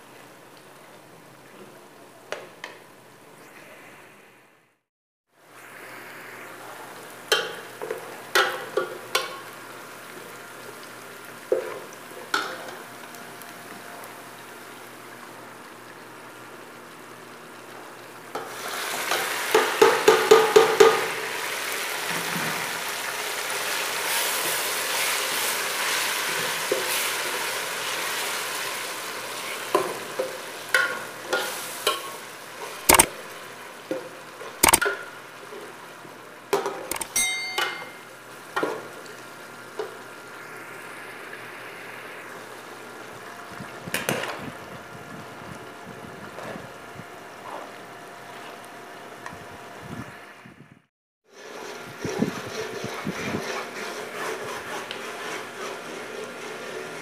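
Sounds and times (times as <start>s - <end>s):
onions frying in oil: 5.3s - 50.2s, 51.2s - 52.1s
spoon knocking on pot: 36.9s - 38.0s.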